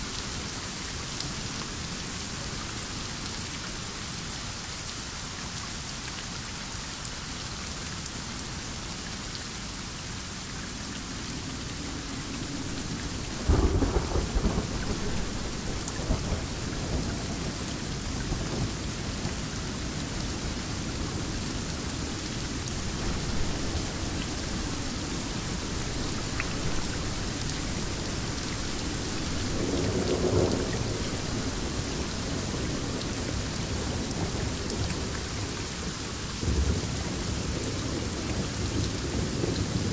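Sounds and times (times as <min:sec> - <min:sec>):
heavy rain: 0:00.0 - 0:39.9
thunder rumbling: 0:12.2 - 0:17.4, 0:22.6 - 0:32.9.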